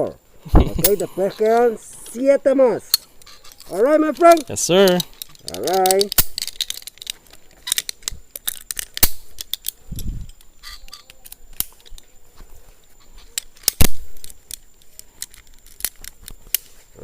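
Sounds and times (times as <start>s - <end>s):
metallic clicks of zipline gear: 2.9s - 12.1s, 13.2s - 16.8s.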